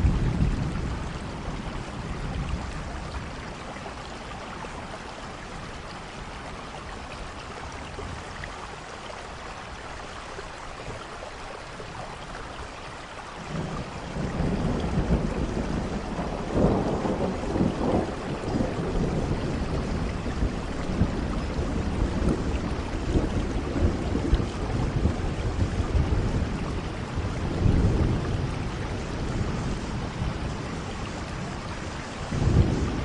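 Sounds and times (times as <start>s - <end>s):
thunder rumbling: 0.0s - 3.7s, 13.5s - 33.0s
heavy rain: 0.0s - 33.0s.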